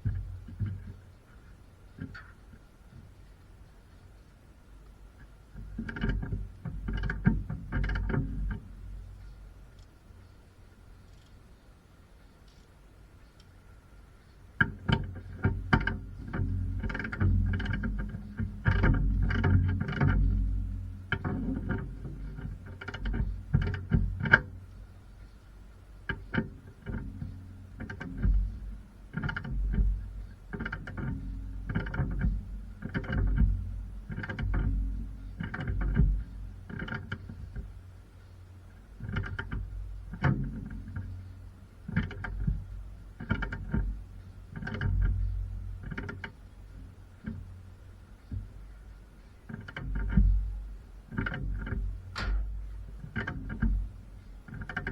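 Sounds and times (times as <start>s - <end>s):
low thuds: 26.0s - 37.9s, 49.8s - 54.4s.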